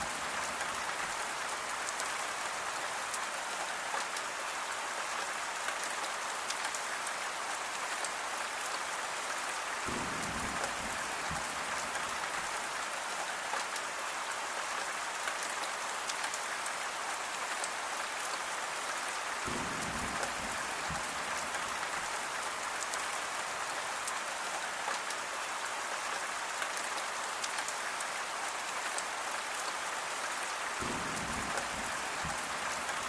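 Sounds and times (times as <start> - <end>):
steady rain falling: 0.0 - 33.0
raindrops ticking: 9.9 - 12.7, 19.5 - 23.0, 30.8 - 33.0.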